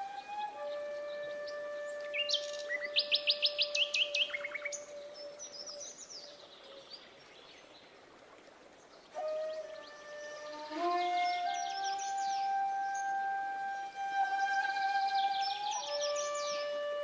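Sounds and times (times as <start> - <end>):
held flute note: 0.0 - 3.8, 9.2 - 17.0
songbird chirping: 0.0 - 17.0.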